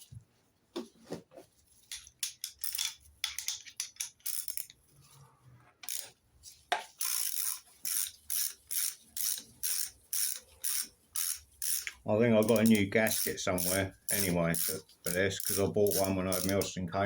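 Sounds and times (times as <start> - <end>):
tools clinking against metal: 1.9 - 4.7
socket ratchet clicking: 2.0 - 4.8, 7.0 - 16.7.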